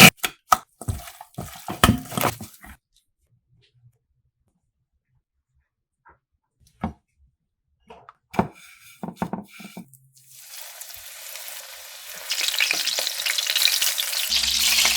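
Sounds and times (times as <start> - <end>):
oil sizzling: 9.5 - 14.9.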